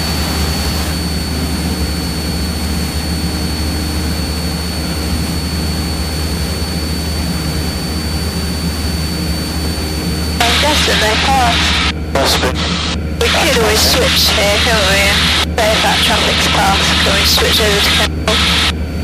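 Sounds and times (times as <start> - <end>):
propeller plane engine drone: 0.0 - 19.0
thin high whine: 7.6 - 18.8.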